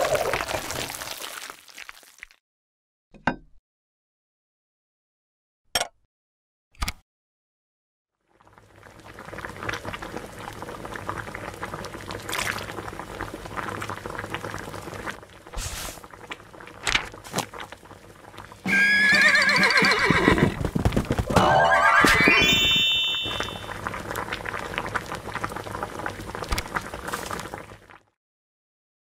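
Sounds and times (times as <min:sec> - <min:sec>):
ice crackling in water: 0:00.0 - 0:02.4, 0:11.8 - 0:18.5
wavering pitched tone: 0:21.3 - 0:23.7.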